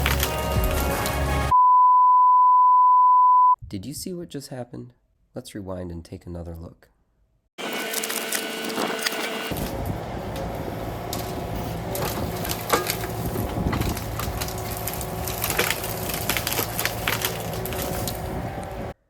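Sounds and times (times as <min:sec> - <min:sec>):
sharp cracks and knocks: 0:00.0 - 0:01.2, 0:11.1 - 0:18.3
excavator engine running: 0:07.6 - 0:19.0.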